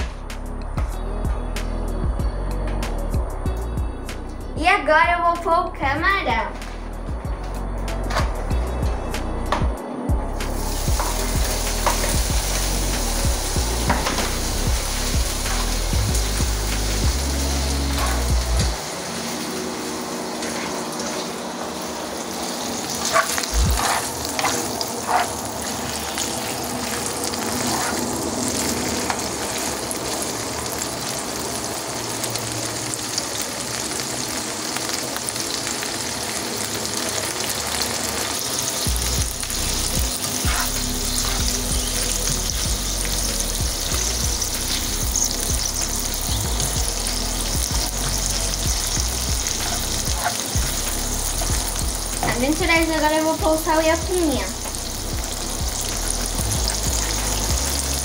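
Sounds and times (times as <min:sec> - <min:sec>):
shrimp sizzling in frying pan: 0:10.4 - 0:58.0
spatula stirring in pan: 0:22.9 - 0:25.4.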